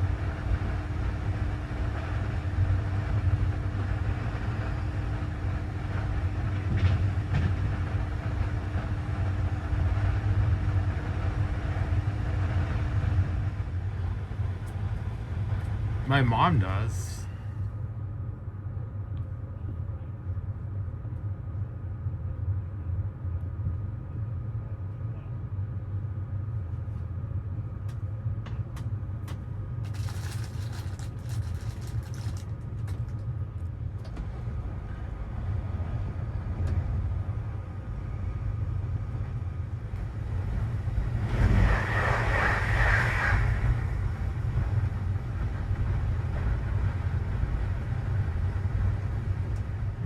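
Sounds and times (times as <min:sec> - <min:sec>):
passenger train rumble: 0:00.0 - 0:50.0
rushing noise: 0:40.9 - 0:44.4.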